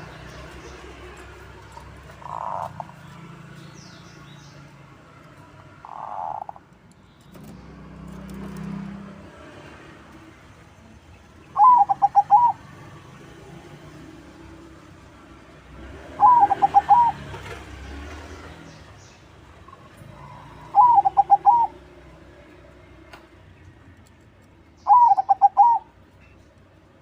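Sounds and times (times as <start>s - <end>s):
dove cooing: 2.2s - 2.9s, 5.8s - 6.6s, 11.6s - 12.6s, 16.1s - 17.4s, 20.1s - 21.9s, 24.9s - 26.0s.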